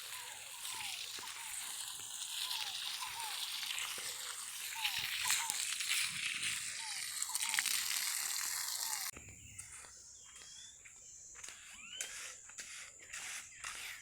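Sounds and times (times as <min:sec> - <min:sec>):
bird chirps: 0:00.0 - 0:07.9, 0:08.7 - 0:14.0
rain hissing: 0:00.0 - 0:09.1
insect drone: 0:00.0 - 0:14.0.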